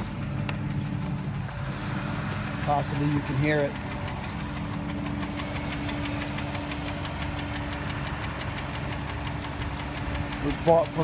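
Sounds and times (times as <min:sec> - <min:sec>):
car engine running: 0:00.0 - 0:11.0
rapid engine ticking: 0:00.0 - 0:11.0.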